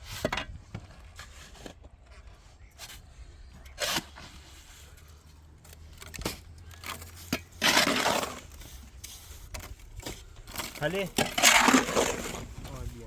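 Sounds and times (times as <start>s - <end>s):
scraping: 3.7s - 13.0s.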